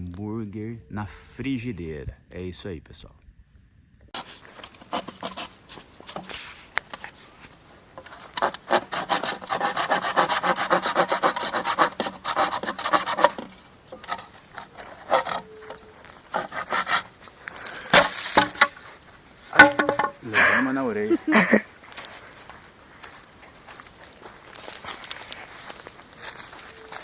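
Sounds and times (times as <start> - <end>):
hand saw cutting bamboo: 4.2 - 6.7, 8.0 - 18.8, 19.5 - 20.2.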